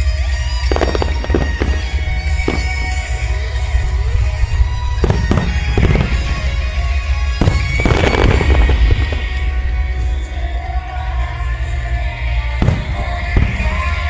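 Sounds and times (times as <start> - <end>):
fireworks bursting: 0.0 - 10.6, 12.6 - 14.0
fireworks crackle: 0.0 - 10.6, 12.6 - 14.0
music: 0.0 - 14.0.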